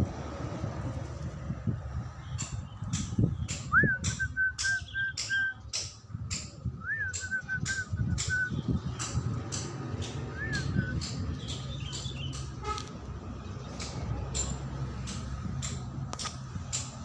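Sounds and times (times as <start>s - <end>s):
sharp ticks: 2.4s - 12.6s, 13.7s - 17.0s.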